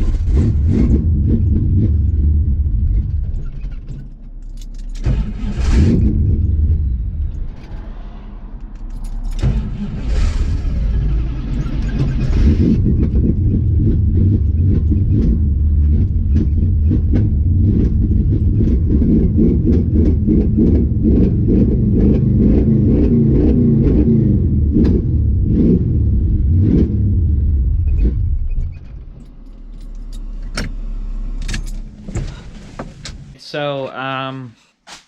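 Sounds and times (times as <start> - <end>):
car engine and road rumble: 0.0 - 34.4.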